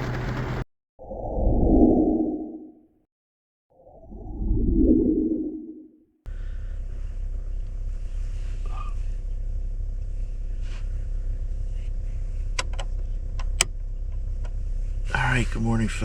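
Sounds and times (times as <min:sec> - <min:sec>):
vehicle engine idling: 0:00.0 - 0:00.6, 0:06.3 - 0:16.0.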